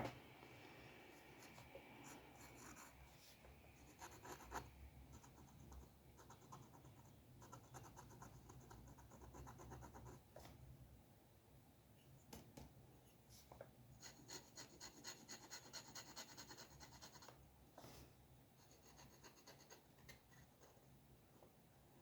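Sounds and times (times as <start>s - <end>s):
drawing tool scratching paper: 14.0s - 17.3s.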